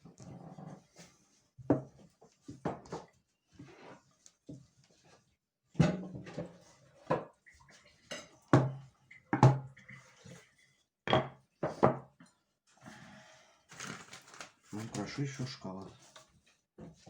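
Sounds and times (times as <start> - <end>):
kitchenware knocking and clattering: 5.8 - 7.4, 8.1 - 9.8, 11.1 - 12.2.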